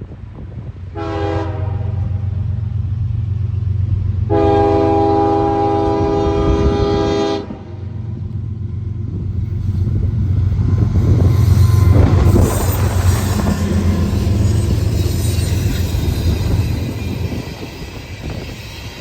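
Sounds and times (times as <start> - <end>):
diesel locomotives rumbling: 0.0 - 19.0
locomotive air horn blasts: 0.9 - 2.3, 4.3 - 7.8.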